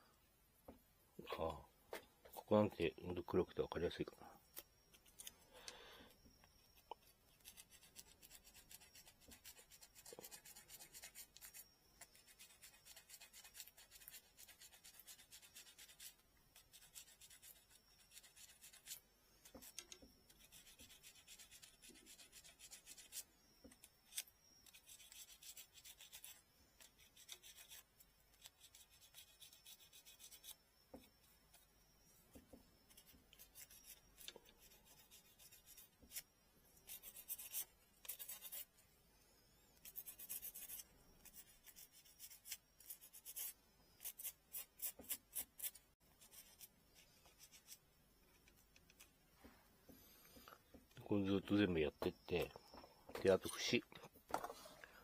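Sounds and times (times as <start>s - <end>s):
sandpaper rubbing bamboo: 7.3s - 23.3s, 24.0s - 30.6s, 32.9s - 36.2s, 36.8s - 38.7s, 39.8s - 47.8s.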